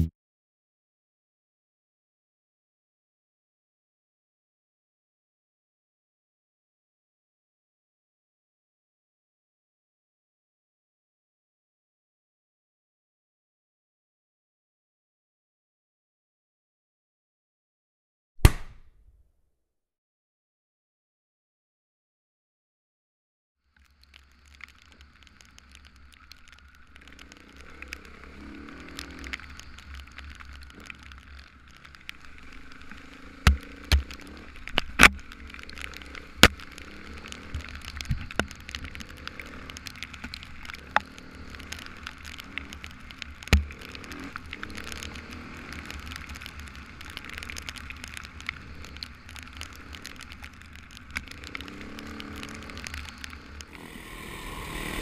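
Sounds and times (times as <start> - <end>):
sharp knocks: 18.4 - 18.9
wind and road rumble: 23.7 - 55.0.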